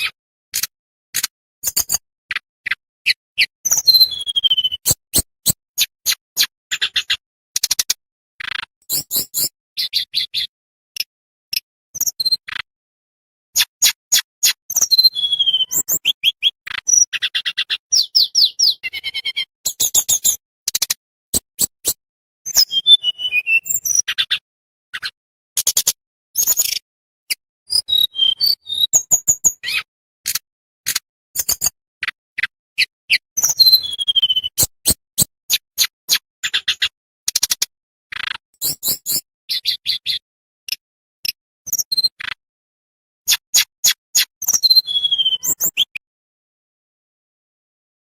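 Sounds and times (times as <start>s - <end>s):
songbird singing: 2.7s - 7.2s, 14.4s - 20.4s, 22.5s - 24.4s, 32.4s - 34.7s, 44.5s - 46.0s.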